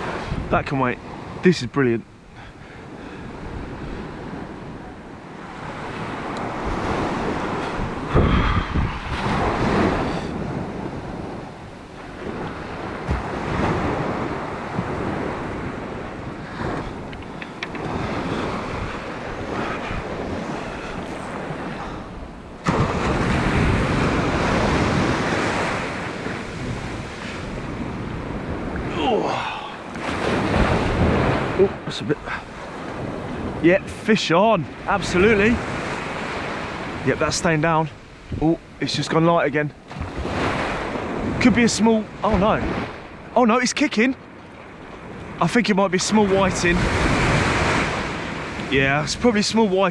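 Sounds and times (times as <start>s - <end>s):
wind buffeting microphone: 0.0s - 1.4s, 2.1s - 43.4s, 46.2s - 49.9s
surf breaking on beach: 0.0s - 49.9s.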